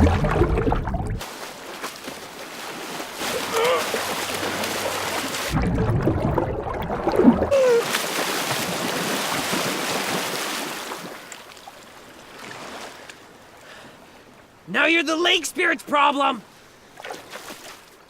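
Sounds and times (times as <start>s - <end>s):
loud splash into water: 0.0s - 1.2s, 3.2s - 10.6s
water sloshing: 0.0s - 13.2s.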